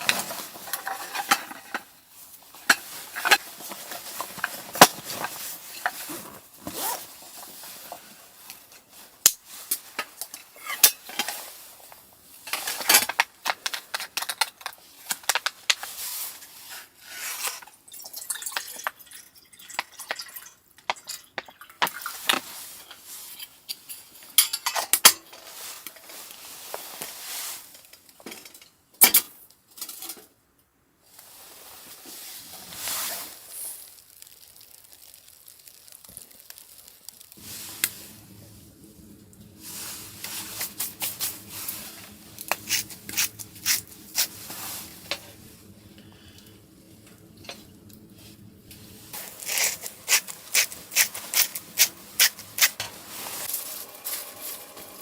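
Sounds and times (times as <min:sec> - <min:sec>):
metal utensils clinking on pots: 0:00.0 - 0:01.9, 0:23.4 - 0:26.1.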